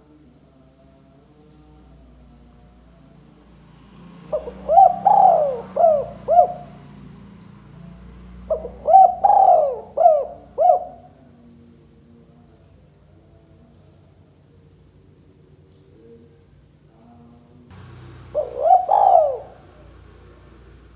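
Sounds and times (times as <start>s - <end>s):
dove cooing: 4.3s - 6.8s, 8.5s - 11.1s, 17.8s - 20.9s.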